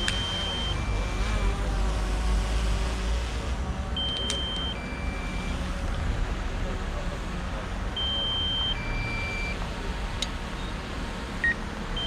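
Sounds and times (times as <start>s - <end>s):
electronic two-tone beep: 0.1s - 1.5s, 4.0s - 5.5s, 8.0s - 9.6s.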